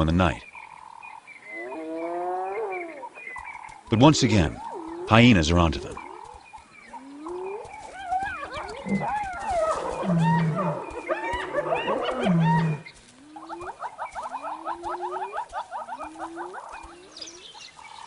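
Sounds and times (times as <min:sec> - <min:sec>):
hyenas squealing and whooping: 0:01.5 - 0:03.4, 0:07.0 - 0:17.6
hyenas giggling cackles: 0:08.0 - 0:12.8.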